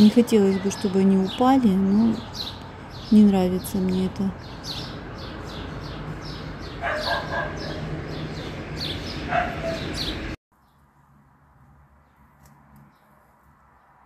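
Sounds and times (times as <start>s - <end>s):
steady outdoor hum: 0.0s - 14.0s
high falling bird chirps: 1.1s - 10.9s.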